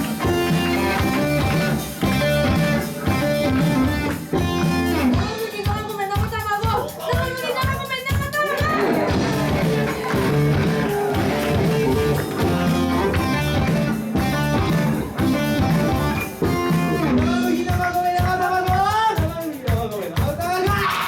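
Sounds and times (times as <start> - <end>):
electric guitar: 0.0 - 5.9, 8.5 - 19.3
live band playing: 0.0 - 21.0.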